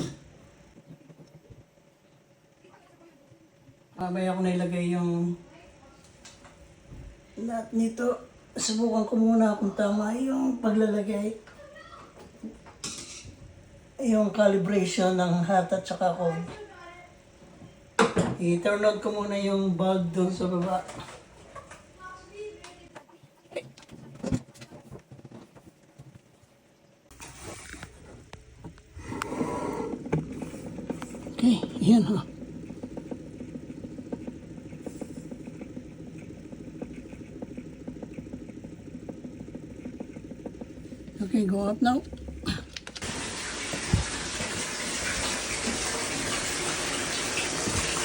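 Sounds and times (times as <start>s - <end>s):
water rushing in plumbing: 27.1s - 48.0s
shower water running: 40.8s - 48.0s.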